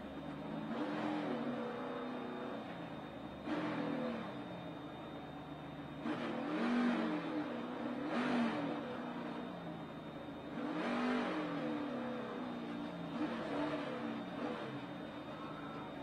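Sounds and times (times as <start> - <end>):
race car engine revving: 0.4 - 2.4, 3.4 - 4.3, 6.0 - 9.4, 10.4 - 14.9.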